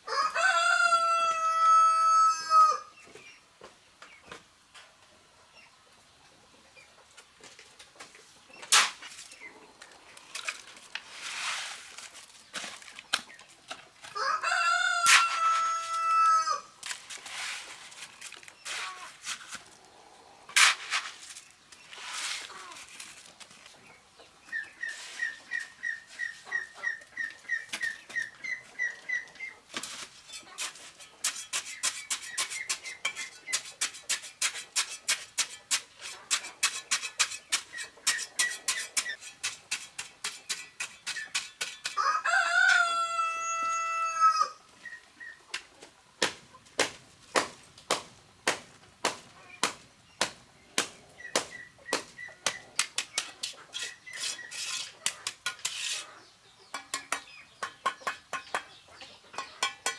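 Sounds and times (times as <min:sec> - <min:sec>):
rooster crowing: 0:00.0 - 0:02.9, 0:14.2 - 0:16.7, 0:42.0 - 0:44.6
bird chirping: 0:23.8 - 0:29.6, 0:49.3 - 0:55.3, 0:56.0 - 0:59.9.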